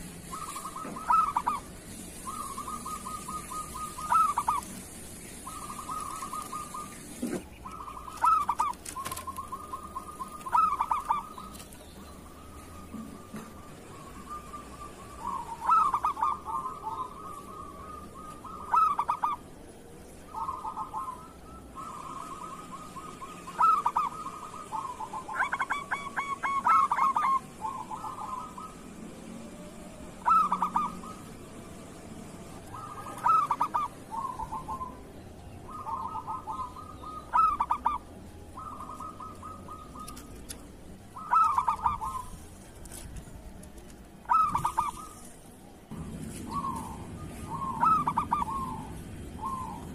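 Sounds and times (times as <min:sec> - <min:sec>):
soft bird trills: 0:00.0 - 0:19.5, 0:32.6 - 0:43.0, 0:44.2 - 0:49.9
dove cooing: 0:00.0 - 0:19.6, 0:20.2 - 0:45.3, 0:45.9 - 0:49.9.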